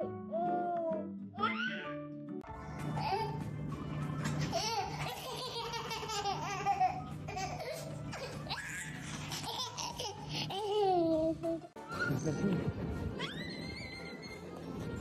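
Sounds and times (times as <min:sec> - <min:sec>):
background music: 0:00.0 - 0:15.0
baby laughing: 0:04.4 - 0:11.8.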